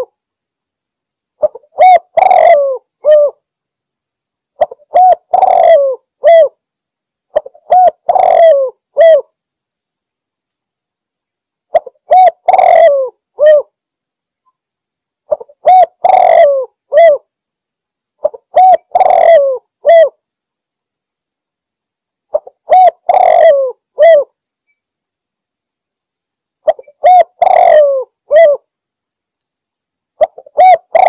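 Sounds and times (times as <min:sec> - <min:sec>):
dove cooing: 0:01.4 - 0:03.4, 0:04.6 - 0:06.6, 0:07.3 - 0:09.3, 0:11.7 - 0:13.7, 0:15.3 - 0:17.3, 0:18.2 - 0:20.2, 0:22.3 - 0:24.3, 0:26.6 - 0:28.7, 0:30.2 - 0:31.0.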